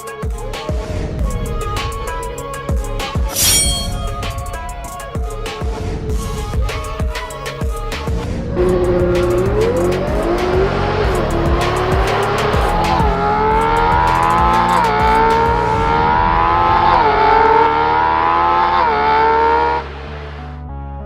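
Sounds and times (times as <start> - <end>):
soft music: 0.0 - 21.0
engine accelerating through gears: 8.2 - 20.4.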